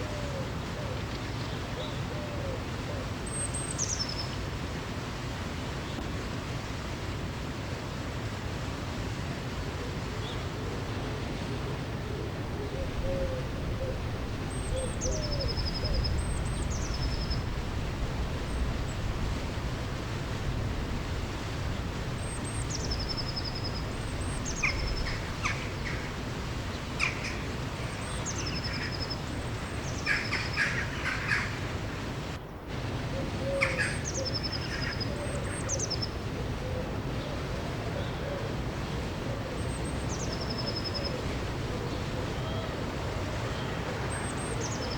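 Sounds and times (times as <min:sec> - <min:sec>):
rushing river water: 0:00.0 - 0:44.9
birds singing: 0:12.6 - 0:17.5, 0:22.2 - 0:31.7, 0:33.4 - 0:36.2, 0:43.6 - 0:44.9.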